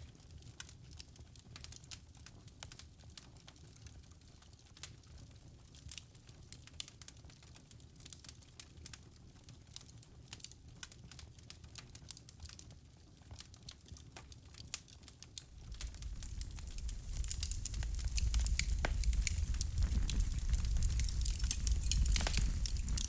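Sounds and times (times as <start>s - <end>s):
wood fire crackling and popping: 0.0s - 23.0s
low rumble of flames: 15.4s - 23.0s.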